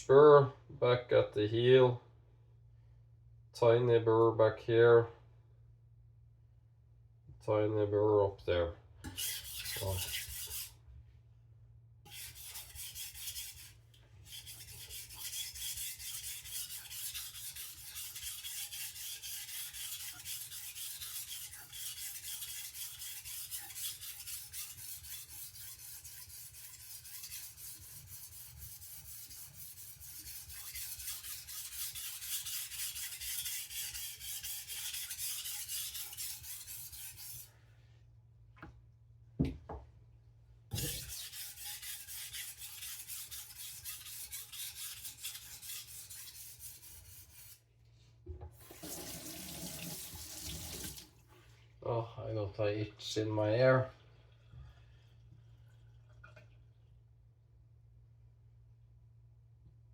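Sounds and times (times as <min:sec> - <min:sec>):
knife scraping on whetstone: 0:09.1 - 0:10.8, 0:12.1 - 0:37.5, 0:40.7 - 0:47.6.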